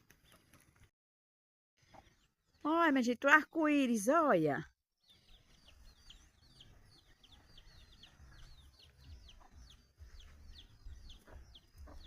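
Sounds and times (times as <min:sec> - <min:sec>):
chicks peeping: 0:05.0 - 0:12.0.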